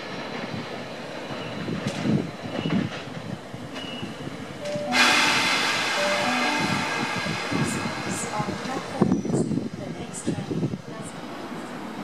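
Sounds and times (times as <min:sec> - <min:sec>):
electric train rumbling: 0:00.0 - 0:12.0
loud steady hiss: 0:04.7 - 0:09.0.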